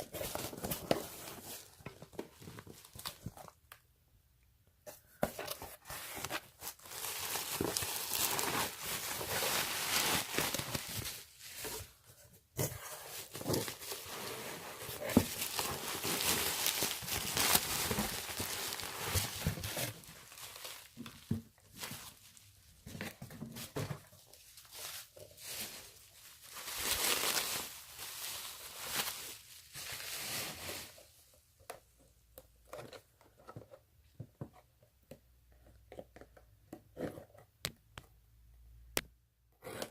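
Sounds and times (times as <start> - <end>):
packaging crinkling and rustling: 5.4 - 12.0, 13.1 - 31.1.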